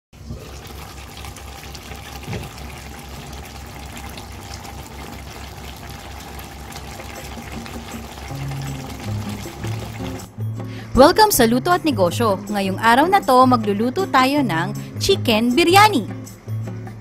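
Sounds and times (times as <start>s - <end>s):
food simmering and bubbling in a pan: 0.2s - 10.4s
music: 6.2s - 17.0s.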